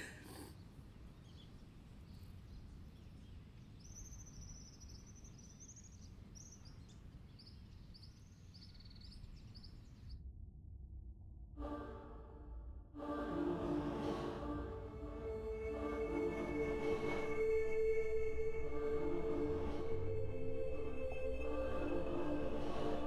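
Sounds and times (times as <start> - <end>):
small bird chirping: 0.6 - 10.2
low steady rumble: 10.4 - 23.0.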